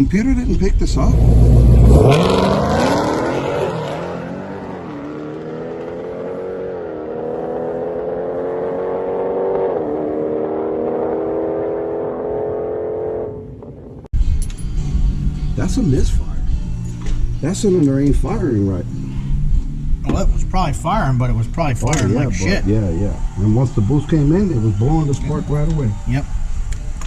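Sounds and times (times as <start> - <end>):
car engine accelerating hard: 0.9 - 14.1.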